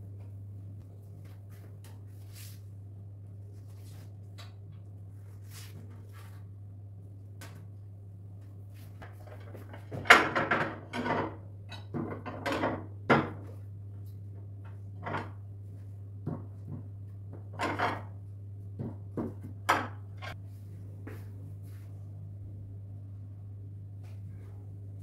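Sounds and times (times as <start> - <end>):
steady low hum: 0.0 - 25.0
dishes and utensils clattering: 9.0 - 13.4.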